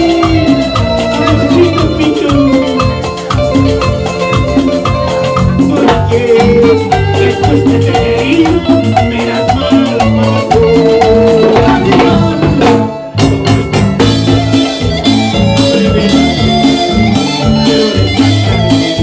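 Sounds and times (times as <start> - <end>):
live band playing dance music: 0.0 - 19.0.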